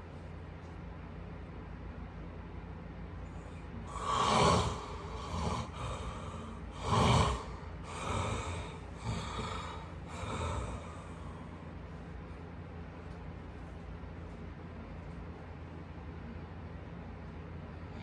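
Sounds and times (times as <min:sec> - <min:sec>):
person snorting breaths: 0:03.8 - 0:11.6.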